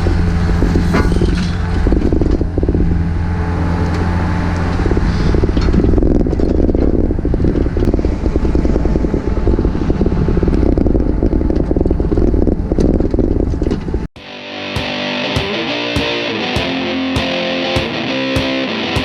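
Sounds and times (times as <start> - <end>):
distorted electric guitar music: 14.2 - 19.0.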